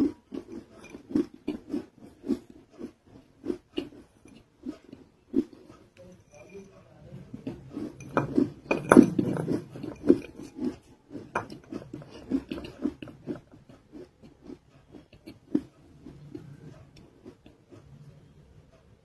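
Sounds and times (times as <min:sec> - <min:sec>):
chewing crunchy food: 0:00.0 - 0:18.5.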